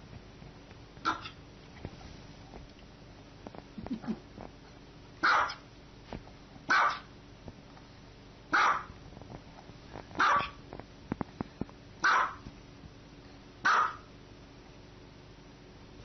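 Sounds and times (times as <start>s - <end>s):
small dog barking: 1.0s - 1.4s, 5.2s - 5.7s, 6.7s - 7.1s, 8.5s - 9.0s, 10.2s - 10.6s, 12.0s - 12.4s, 13.6s - 14.1s.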